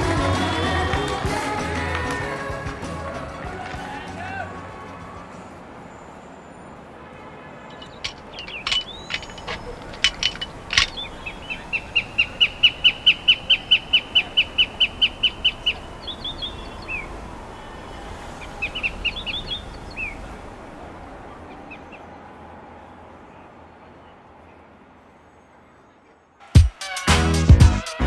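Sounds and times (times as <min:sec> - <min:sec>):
faint background noise: 0:00.0 - 0:26.5
high bird chirps: 0:07.7 - 0:17.2.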